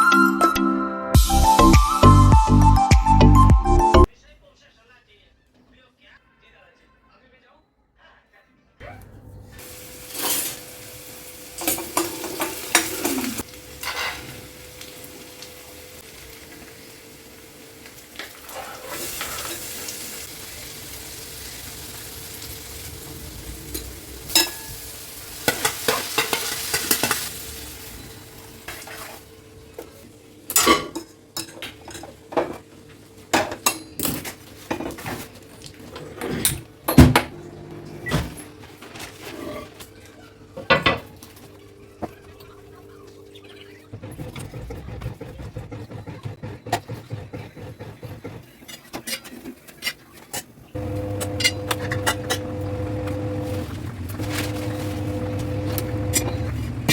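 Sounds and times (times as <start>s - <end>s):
food sizzling in a pan: 9.6s - 31.0s, 50.8s - 56.2s.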